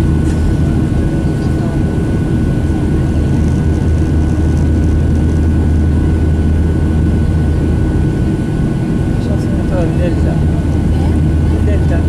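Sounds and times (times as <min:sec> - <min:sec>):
airplane cabin jet engine drone: 0:00.0 - 0:12.0.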